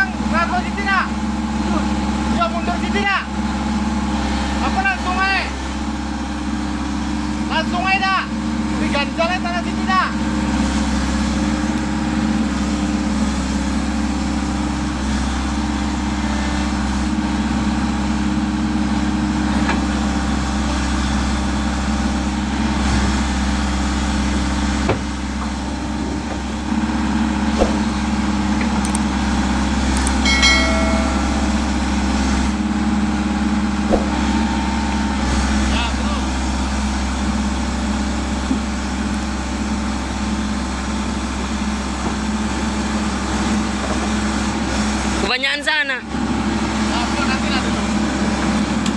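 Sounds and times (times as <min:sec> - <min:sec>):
excavator diesel engine running: 0:00.0 - 0:48.9
brief high-pitched tone: 0:30.2 - 0:32.3.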